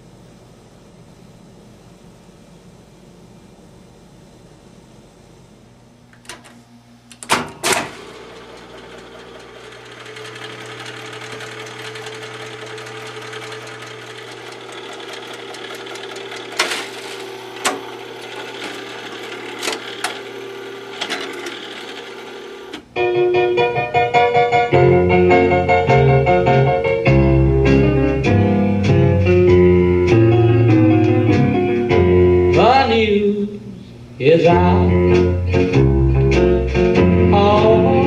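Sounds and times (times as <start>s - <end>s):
motor hum: 3.0s - 23.1s
record-changer mechanism clicking: 6.1s - 22.9s.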